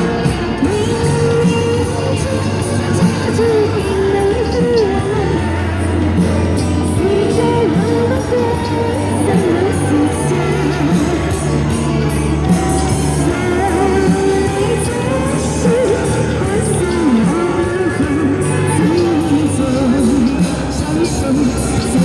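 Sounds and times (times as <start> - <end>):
instrumental accompaniment: 0.0 - 22.0
person singing pop song: 0.0 - 22.0.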